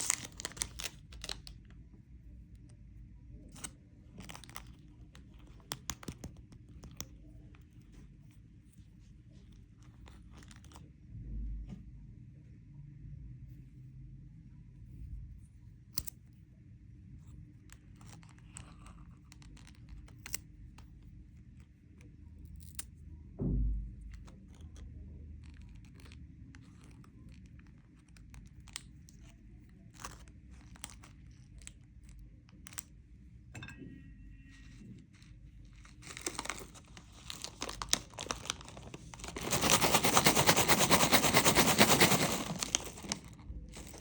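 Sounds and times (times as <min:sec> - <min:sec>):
plastic wrappers crackling: 0:00.0 - 0:01.5, 0:36.0 - 0:44.0
heavy thump: 0:23.4 - 0:24.0.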